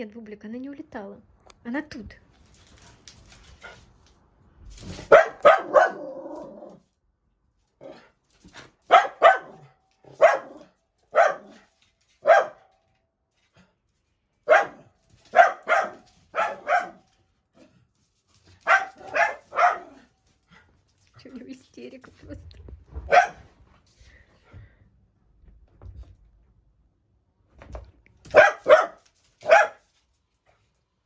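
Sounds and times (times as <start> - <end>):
dog barking: 5.0 - 6.7, 8.9 - 12.7, 14.4 - 17.1, 18.6 - 20.1, 23.0 - 23.5, 28.3 - 29.9.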